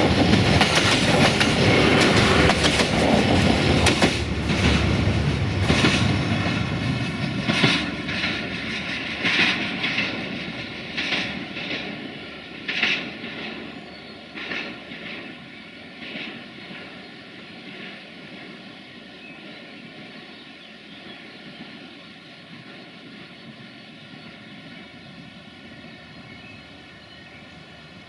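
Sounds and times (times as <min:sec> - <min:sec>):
train clatter: 0:00.0 - 0:20.4
diesel train engine drone: 0:00.0 - 0:28.0.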